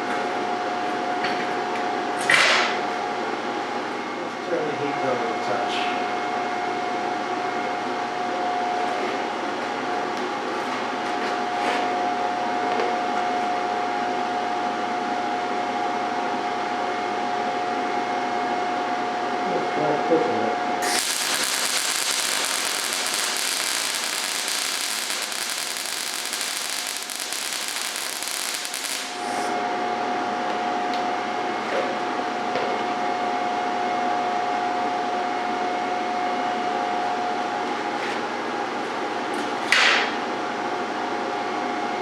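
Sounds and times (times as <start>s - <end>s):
loud burst of noise: 20.8s - 29.6s
welding arc crackling: 20.8s - 29.6s
steady tonal hum: 21.0s - 32.5s.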